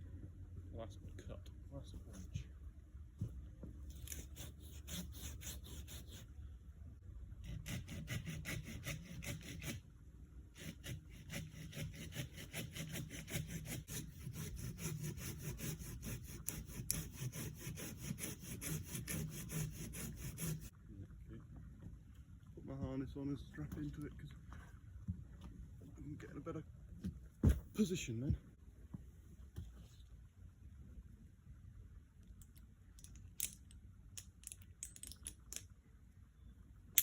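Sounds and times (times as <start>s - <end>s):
hand saw cutting wood: 4.0s - 6.2s, 7.4s - 9.8s, 10.5s - 20.7s.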